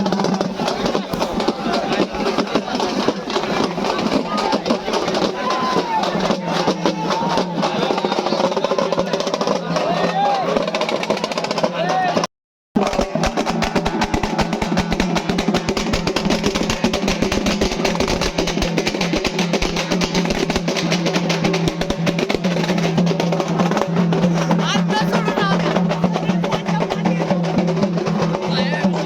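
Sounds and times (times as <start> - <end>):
frame drums beating rapidly: 0.0 - 29.0.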